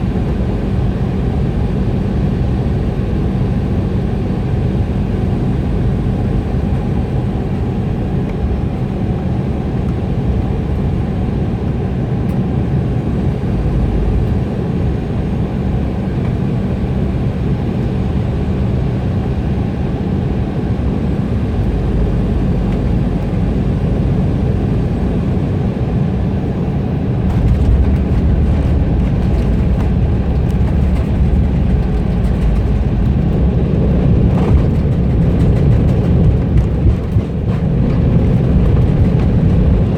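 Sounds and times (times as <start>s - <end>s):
deep rumble with rattling: 0.0s - 39.9s
jet engines and airflow rushing: 0.0s - 39.9s.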